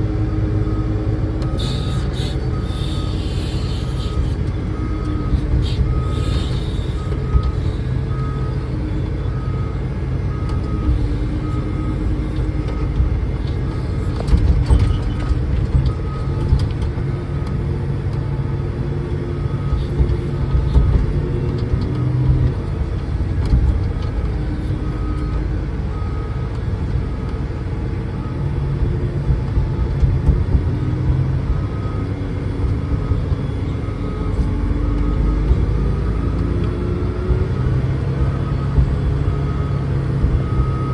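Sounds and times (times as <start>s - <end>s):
diesel truck engine running: 0.0s - 40.9s
backup alarm beeping: 1.4s - 17.3s, 19.4s - 26.4s.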